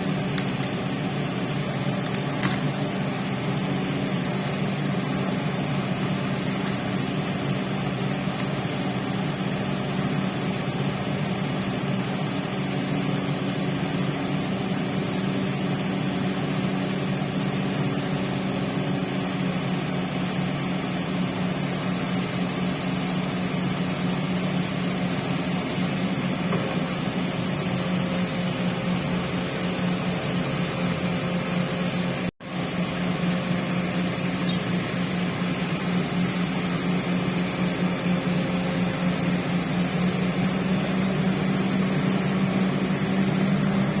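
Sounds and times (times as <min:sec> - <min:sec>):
construction machine engine droning: 0:00.0 - 0:44.0.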